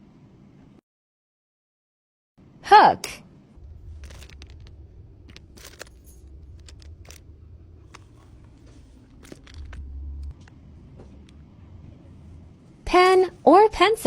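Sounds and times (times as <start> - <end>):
low rumble: 3.5 - 12.8.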